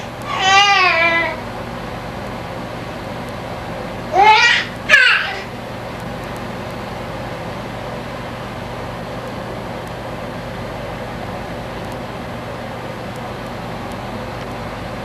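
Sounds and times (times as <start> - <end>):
dishwasher running: 4.1 - 7.9.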